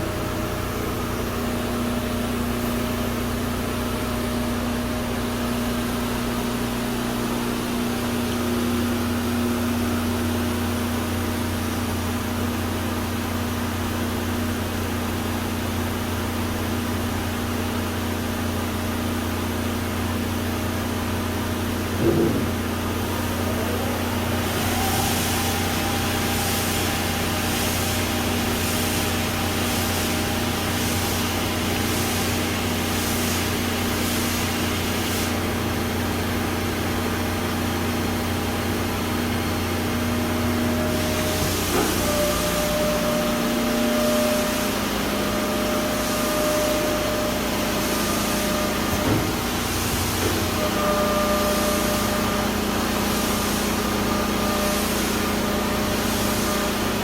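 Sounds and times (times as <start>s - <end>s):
grinding machine motor humming: 20.5s - 32.8s, 35.5s - 57.0s
coolant spray hiss: 21.6s - 36.2s, 37.0s - 57.0s.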